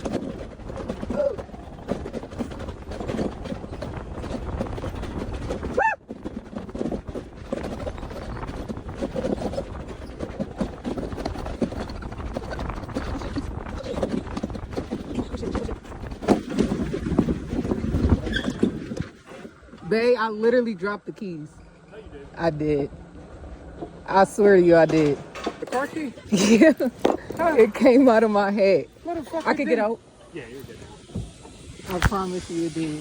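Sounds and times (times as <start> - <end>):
wind buffeting microphone: 0.0 - 21.4
coaster cart rumbling on track: 0.0 - 33.0.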